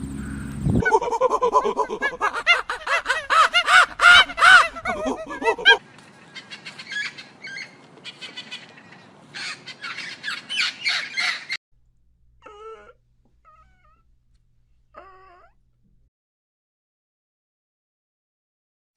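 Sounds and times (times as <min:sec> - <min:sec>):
flock of birds squawking: 0:02.2 - 0:11.6
wavering meow-like calls: 0:12.4 - 0:14.0, 0:15.0 - 0:15.6.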